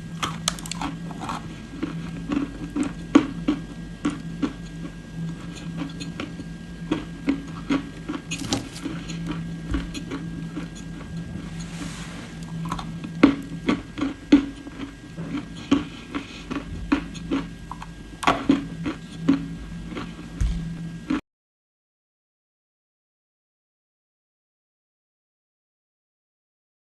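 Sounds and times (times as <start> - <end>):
low hum: 0.0 - 21.1
crunching chewing: 0.1 - 20.4.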